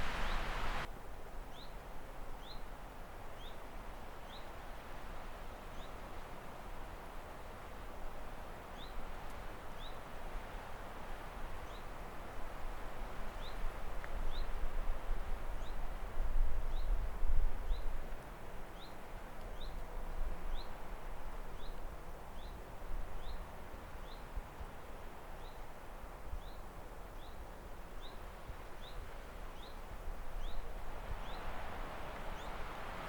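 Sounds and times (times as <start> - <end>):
small bird chirping: 0.0 - 0.9.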